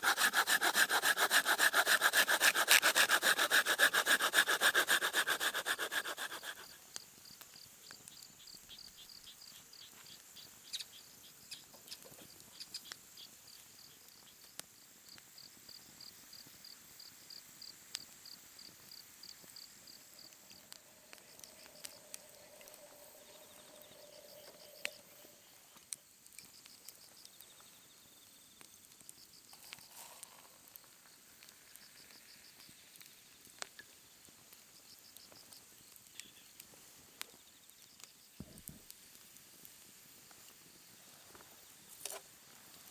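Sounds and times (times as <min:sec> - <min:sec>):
insects chirping: 0:00.0 - 0:36.6.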